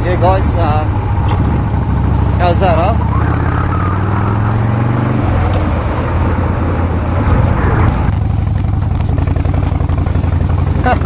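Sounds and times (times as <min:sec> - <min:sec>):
motorcycle engine running: 0:00.0 - 0:11.0
wind noise on microphone: 0:01.2 - 0:01.9.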